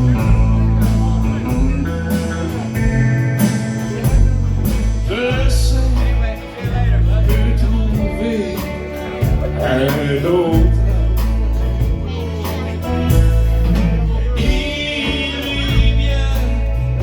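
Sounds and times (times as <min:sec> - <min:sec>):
live band playing country music: 0:00.0 - 0:17.0.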